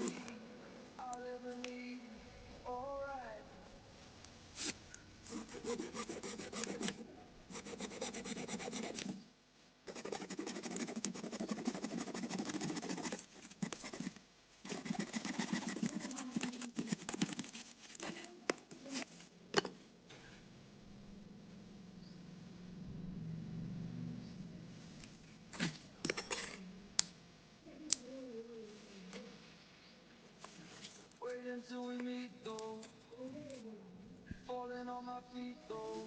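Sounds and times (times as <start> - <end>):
blade scraping a branch: 4.6 - 7.0, 14.7 - 18.3.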